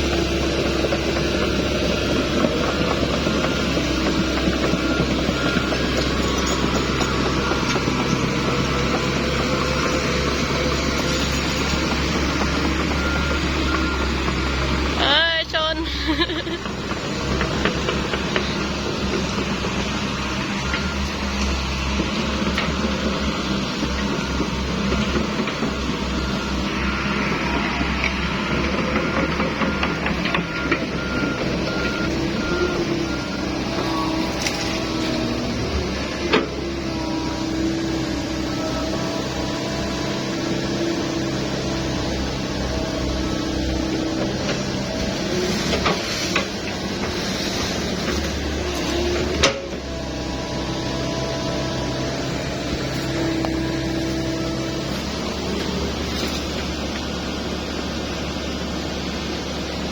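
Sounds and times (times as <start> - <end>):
engine rumble: 0.0 - 59.9
reversing alarm beeps: 0.4 - 16.6, 17.3 - 36.3.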